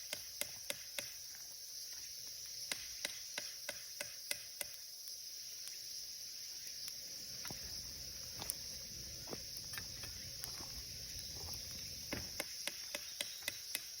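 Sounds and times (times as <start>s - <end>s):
insect drone: 0.0s - 14.0s
wood fire crackling and popping: 0.0s - 14.0s.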